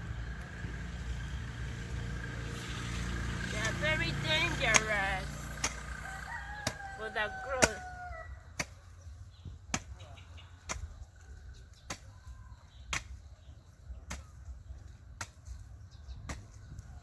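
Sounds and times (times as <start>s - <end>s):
hoe chopping into soil: 3.5s - 9.0s, 9.6s - 11.1s, 11.8s - 14.5s, 15.1s - 15.6s, 16.2s - 16.9s.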